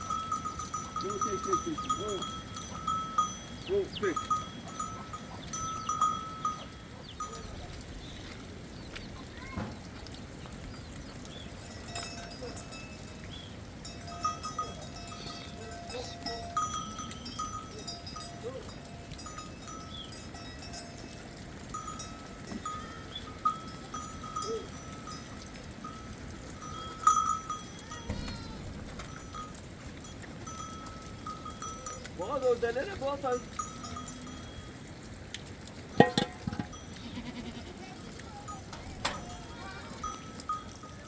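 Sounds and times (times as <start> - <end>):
animal bells clinking: 0.0 - 9.6, 10.8 - 41.0.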